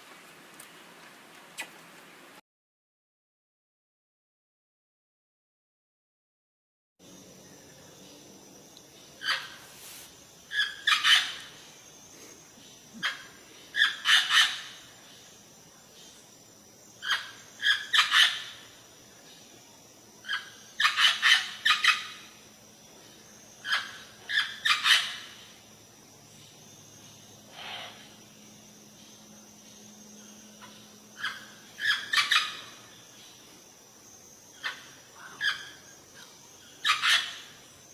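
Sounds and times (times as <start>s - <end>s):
bird calling: 9.2s - 11.6s, 30.2s - 33.0s, 34.5s - 37.6s.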